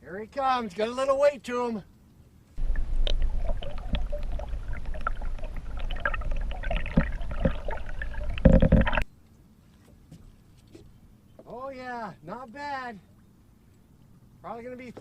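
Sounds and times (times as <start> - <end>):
rush of water: 2.6 - 9.0
water splashing and gurgling: 2.6 - 9.1.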